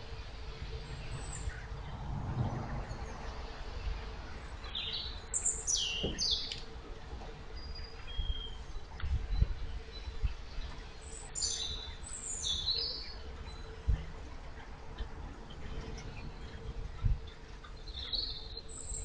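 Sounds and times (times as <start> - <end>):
faint steady hum: 0.0 - 19.0
water churned by propeller: 0.0 - 19.0
small birds chirping: 4.6 - 6.8, 7.5 - 14.1, 15.5 - 19.0.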